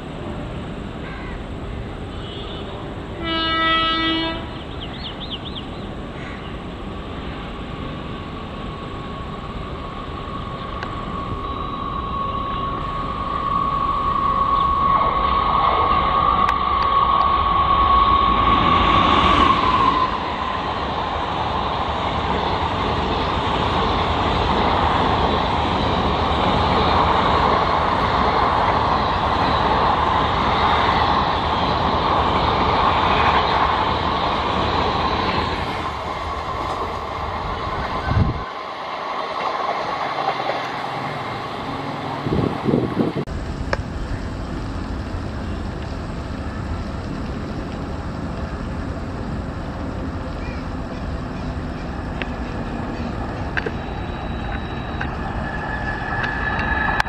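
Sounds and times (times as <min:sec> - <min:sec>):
distant electric train approaching: 0:00.0 - 0:57.0
train coaches rumbling past: 0:00.0 - 0:57.0
train horn high note: 0:02.1 - 0:04.6.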